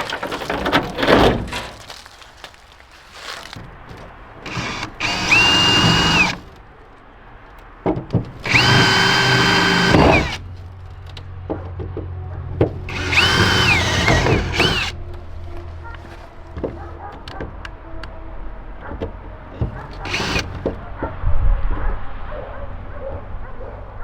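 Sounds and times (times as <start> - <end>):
power drill running: 4.4 - 6.6, 8.4 - 10.4, 12.9 - 15.0, 19.9 - 20.7.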